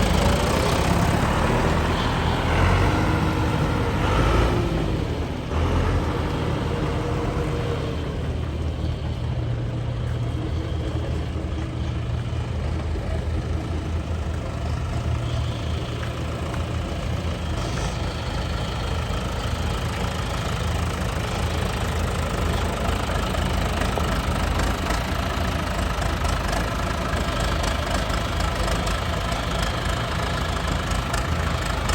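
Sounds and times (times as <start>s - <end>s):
tractor diesel engine running: 0.0s - 31.9s.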